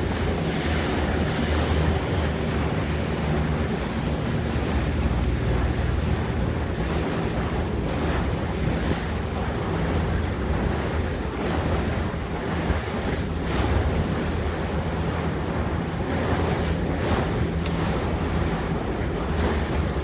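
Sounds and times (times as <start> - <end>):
motorboat engine hum: 0.0 - 20.0
water washing along hull: 0.0 - 20.0
wind buffeting microphone: 0.0 - 20.0.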